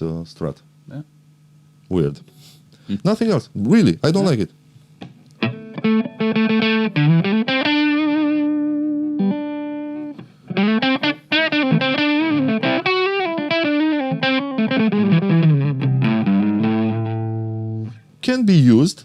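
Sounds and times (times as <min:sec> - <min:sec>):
overdriven electric guitar: 0:05.0 - 0:18.0.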